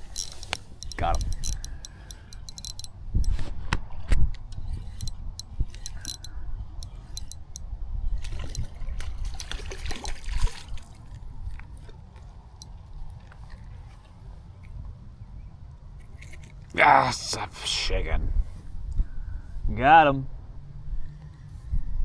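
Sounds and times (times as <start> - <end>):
sharp handling clicks: 0.0 - 3.4, 4.4 - 7.6
water splashing and dripping: 8.2 - 11.6.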